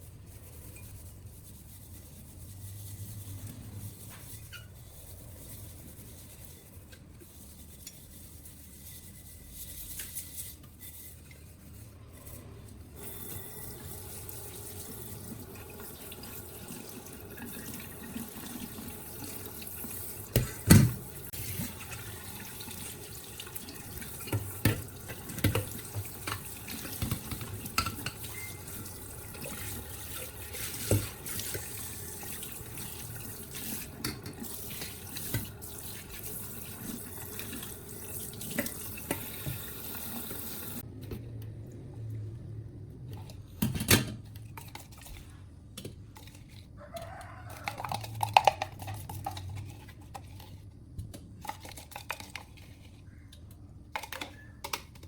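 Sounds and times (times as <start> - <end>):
water running: 13.0 - 40.8.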